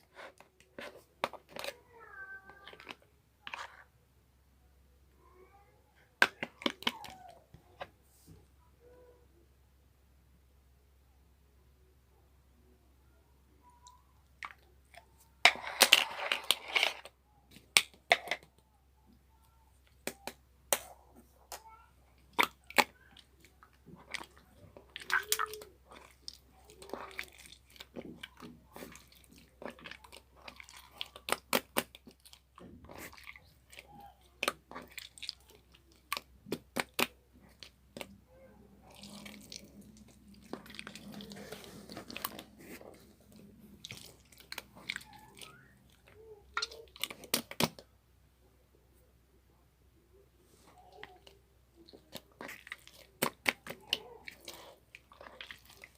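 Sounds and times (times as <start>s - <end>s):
crunching and chewing: 22.2s - 38.2s, 38.8s - 47.8s, 51.0s - 55.9s.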